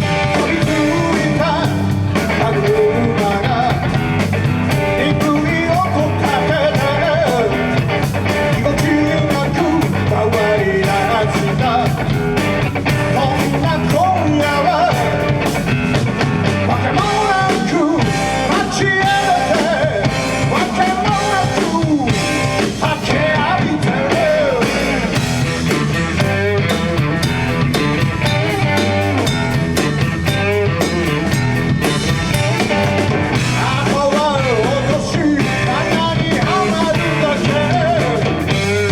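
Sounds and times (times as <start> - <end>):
rock band playing: 0.0 - 38.9
wavering lead melody: 25.0 - 33.9.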